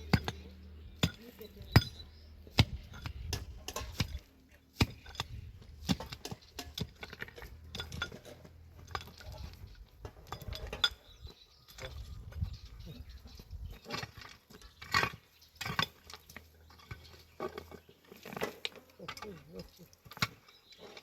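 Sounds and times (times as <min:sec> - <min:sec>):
hard objects clinking: 0:04.8 - 0:12.6.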